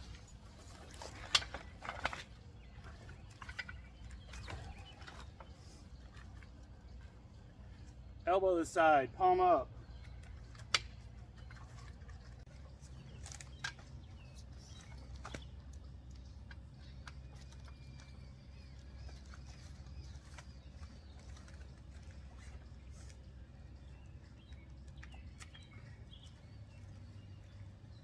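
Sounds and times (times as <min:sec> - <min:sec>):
trampoline rods clicking and knocking: 0:00.0 - 0:07.0, 0:10.0 - 0:23.3
faint birdsong: 0:00.0 - 0:28.0
low outdoor rumble: 0:00.0 - 0:28.0.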